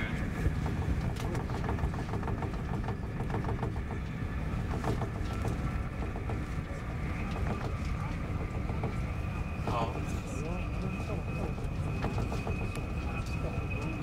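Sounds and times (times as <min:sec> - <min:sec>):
faint clicks and rattles: 0:00.0 - 0:09.6
train cabin rumble: 0:00.0 - 0:14.0.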